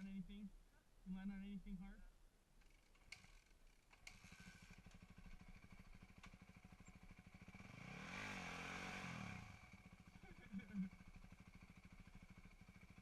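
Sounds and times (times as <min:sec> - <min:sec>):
dirt bike engine idling: 0:02.6 - 0:13.0.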